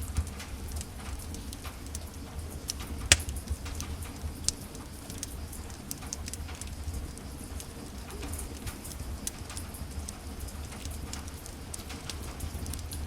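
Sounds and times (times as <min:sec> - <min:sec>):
wood fire crackling: 0:03.1 - 0:03.3.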